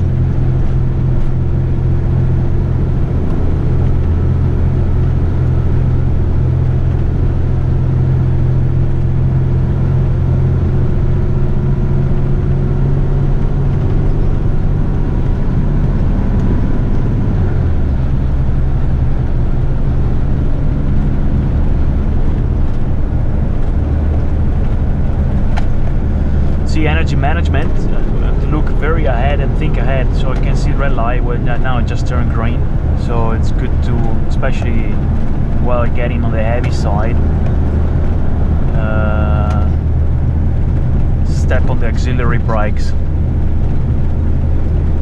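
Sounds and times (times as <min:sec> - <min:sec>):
diesel truck engine from inside cab: 0:00.0 - 0:45.0.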